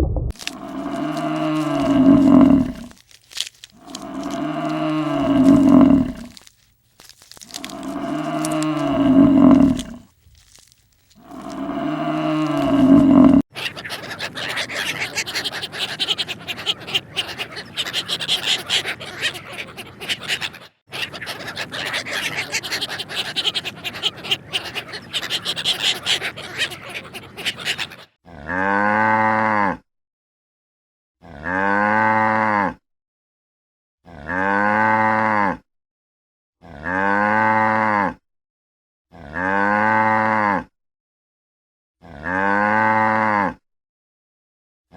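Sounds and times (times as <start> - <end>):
cow mooing: 0.6 - 2.9, 3.8 - 6.3, 7.6 - 10.0, 11.2 - 13.4.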